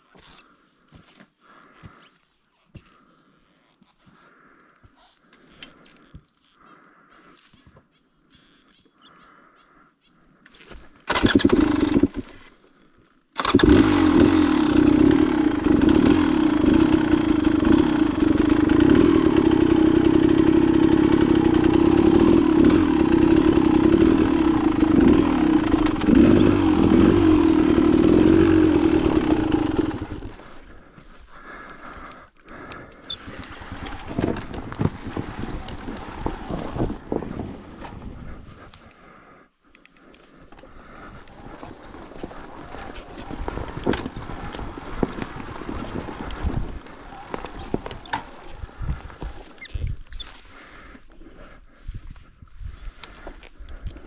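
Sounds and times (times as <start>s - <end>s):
dirt bike engine starting and revving: 11.1s - 12.6s, 13.4s - 39.2s, 40.3s - 51.0s.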